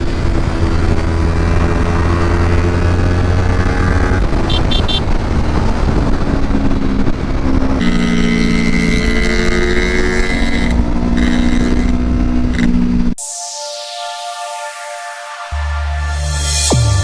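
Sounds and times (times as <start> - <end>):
motorcycle engine running: 0.0 - 13.2
wind noise: 0.0 - 13.2.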